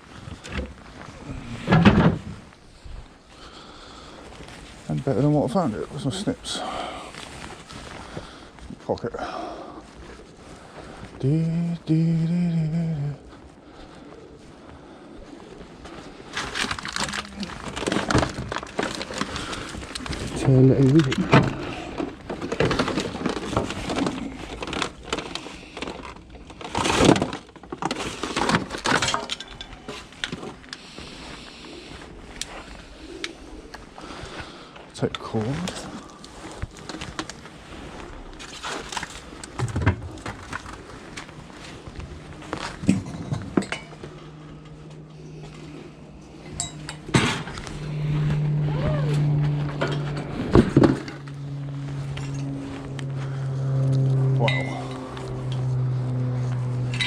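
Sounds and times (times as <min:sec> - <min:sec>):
steady low hum: 0:00.0 - 0:57.0
junk clattering and cracking: 0:00.3 - 0:02.6, 0:16.3 - 0:30.6, 0:46.5 - 0:47.9.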